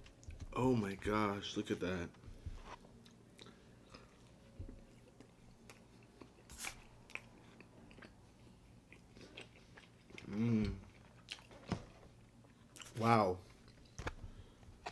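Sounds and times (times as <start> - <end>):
person chewing soft food: 2.6 - 11.6, 12.2 - 14.9.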